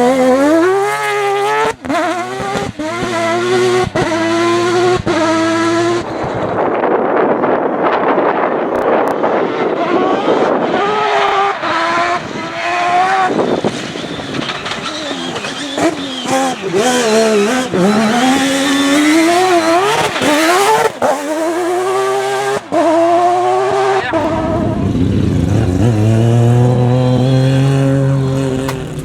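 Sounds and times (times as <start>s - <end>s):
rotary race car engine revving: 0.0s - 29.0s
sharp cracks at gear changes: 13.3s - 21.5s, 28.3s - 29.0s.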